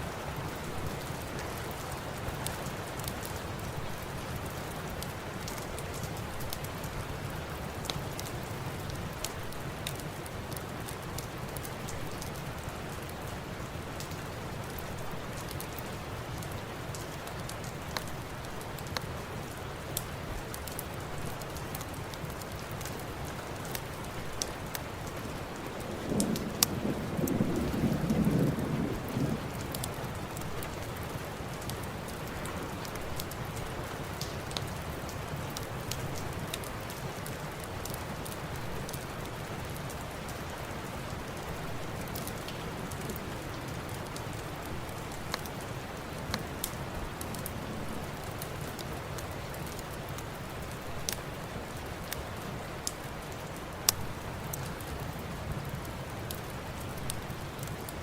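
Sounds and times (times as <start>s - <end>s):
steady rain falling: 0.0s - 58.0s
low rumble of thunder: 25.2s - 33.3s, 47.0s - 48.6s
fireplace crackling: 28.7s - 58.0s.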